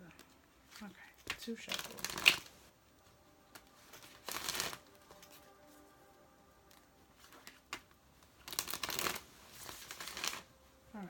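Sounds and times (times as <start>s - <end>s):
soft background music: 0.0s - 11.0s
cards shuffling: 0.1s - 2.6s, 3.5s - 5.5s, 6.7s - 10.5s.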